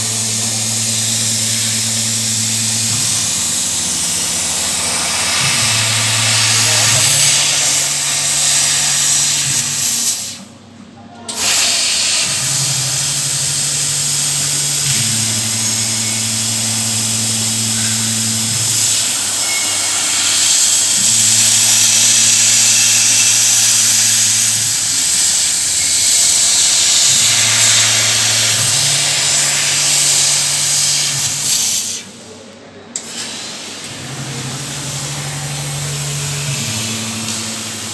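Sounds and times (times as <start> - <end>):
low motor hum: 0.0 - 9.8, 12.4 - 19.1, 33.9 - 37.9
assist gas hissing: 0.0 - 10.5, 11.4 - 32.4, 33.0 - 37.9.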